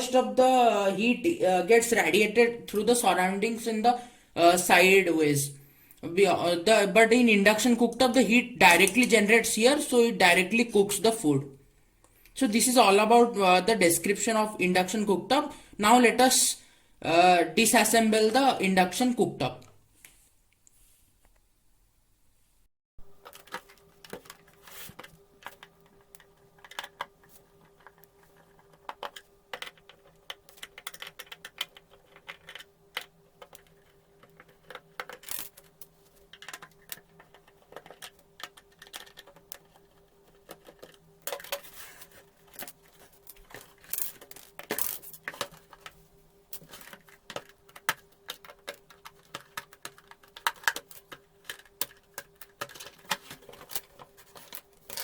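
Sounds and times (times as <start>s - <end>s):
faint steady hum: 0.0s - 55.0s
parts clicking and clinking: 23.2s - 55.0s.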